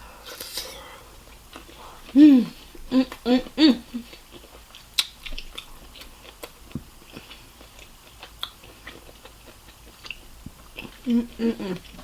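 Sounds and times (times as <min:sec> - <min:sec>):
person chewing: 0:00.3 - 0:03.2, 0:04.0 - 0:12.0
mouth clicks and smacks: 0:04.7 - 0:05.7.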